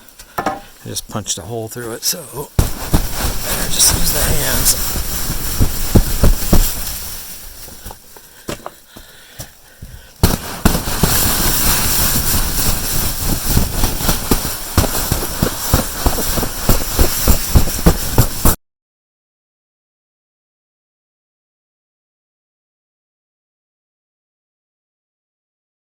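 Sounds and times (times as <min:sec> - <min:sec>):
snow crunching and crackling: 0:01.1 - 0:18.6.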